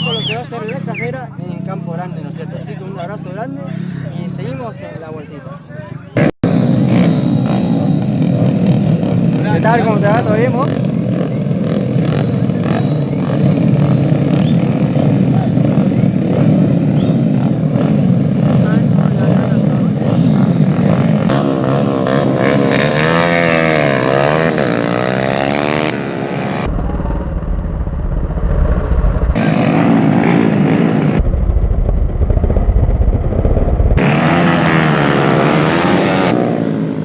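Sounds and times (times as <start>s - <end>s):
motorcycle engines revving: 0.0s - 5.0s, 6.1s - 37.0s
deep low rumble: 26.6s - 35.0s.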